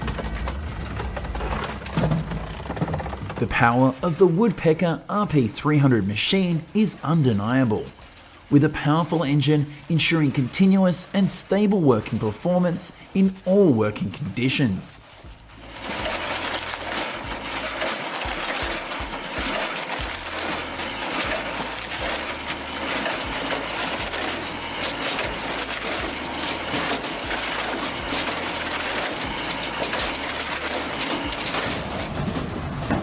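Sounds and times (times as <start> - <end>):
wood pieces knocking together: 0.0 - 3.6
machinery running: 0.0 - 33.0.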